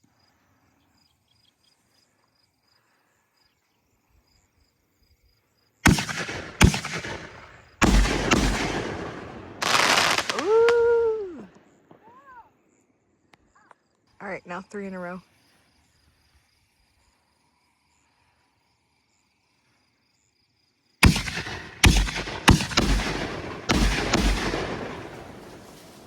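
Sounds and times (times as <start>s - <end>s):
faint insects chirping: 0.0s - 26.0s
fireworks booming breaks: 5.9s - 12.1s, 21.0s - 26.0s
rolling echo and crackle: 5.9s - 12.2s, 21.0s - 26.0s
mortar launch reports: 21.0s - 26.0s.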